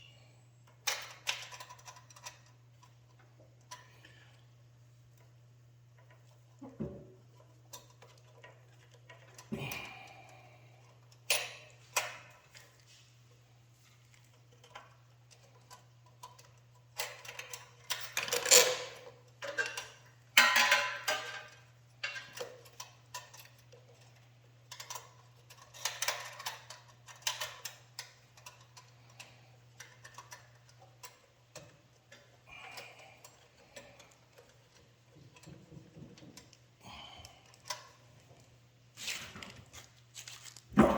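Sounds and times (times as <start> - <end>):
small metal parts clicking: 0.7 - 3.9, 14.5 - 36.6, 37.2 - 40.6.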